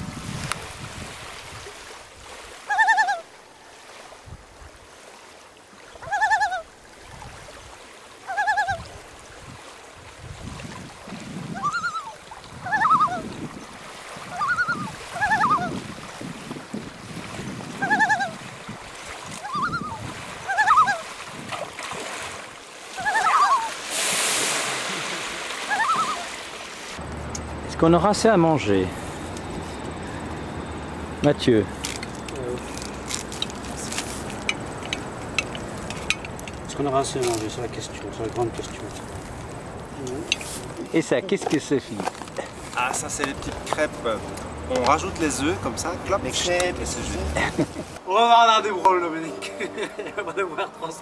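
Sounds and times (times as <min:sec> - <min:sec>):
water splashing: 0:00.0 - 0:29.8, 0:30.9 - 0:51.0
lake water lapping: 0:00.0 - 0:48.1
bird honking calls: 0:06.0 - 0:06.7, 0:08.3 - 0:08.8, 0:11.5 - 0:13.3, 0:14.3 - 0:15.8, 0:17.8 - 0:18.4, 0:19.4 - 0:21.1, 0:23.0 - 0:23.8, 0:25.7 - 0:26.4.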